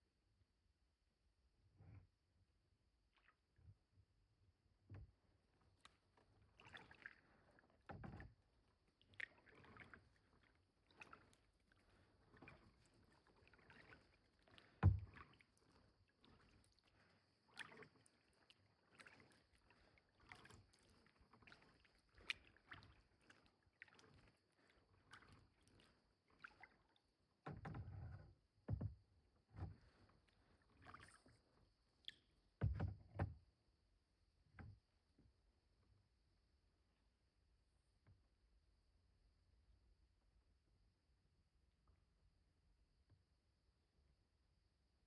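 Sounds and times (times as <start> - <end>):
paddle splashing in water: 6.5 - 26.9.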